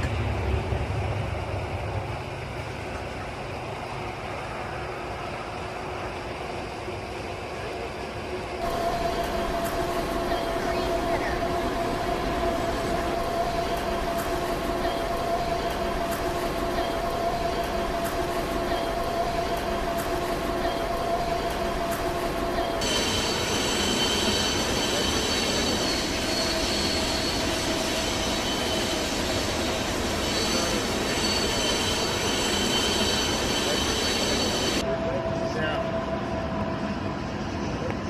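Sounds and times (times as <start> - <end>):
train rumbling past: 0.0 - 38.0
steel wheel squeal: 20.6 - 34.8.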